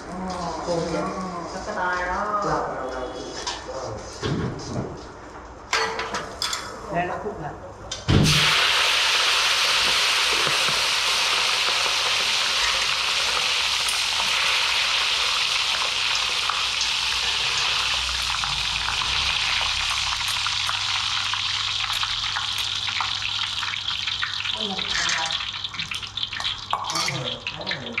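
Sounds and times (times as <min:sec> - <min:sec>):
food deep-frying in oil: 0:08.2 - 0:28.0.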